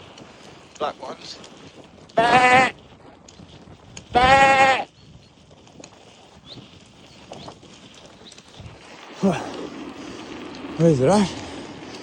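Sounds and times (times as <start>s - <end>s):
sheep bleating: 2.2s - 2.8s, 4.1s - 4.9s.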